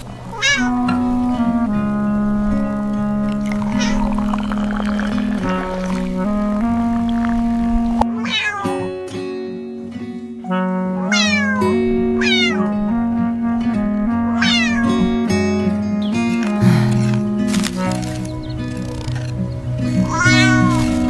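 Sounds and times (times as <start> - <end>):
background music: 0.0 - 21.0
cat meowing: 0.3 - 0.8, 8.0 - 9.0, 11.1 - 12.8, 14.4 - 15.1, 20.0 - 21.0.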